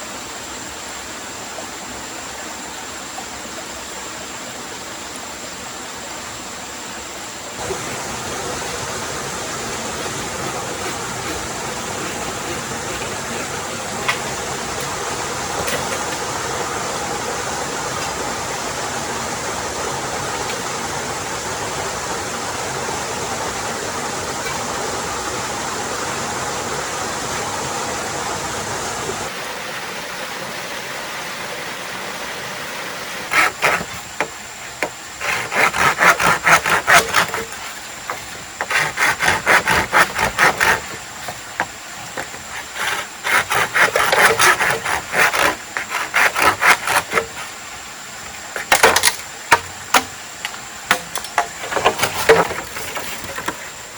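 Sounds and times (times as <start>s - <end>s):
flowing water rushing: 0.0s - 53.9s
short rasping strokes: 7.6s - 17.0s, 33.3s - 47.6s.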